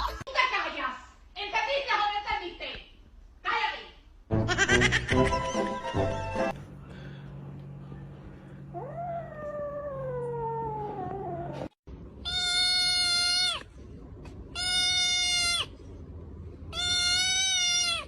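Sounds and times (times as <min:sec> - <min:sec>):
cat meowing: 0:12.2 - 0:13.7, 0:14.6 - 0:15.7, 0:16.7 - 0:18.0.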